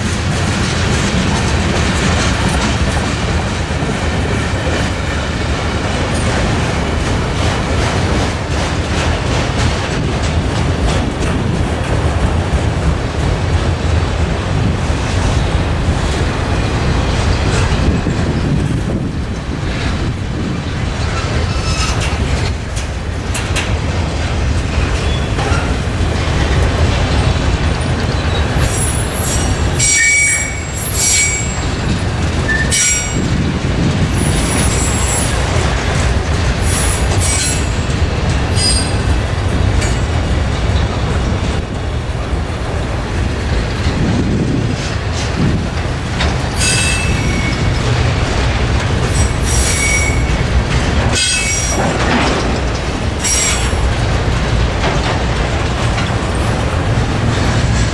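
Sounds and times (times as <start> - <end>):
freight train wheels rumbling: 0.0 - 57.9
wheel flange squeals: 21.0 - 22.5, 28.1 - 33.4, 34.1 - 35.6, 36.6 - 40.0, 46.5 - 48.1, 49.0 - 50.6, 51.2 - 52.0, 53.2 - 53.9.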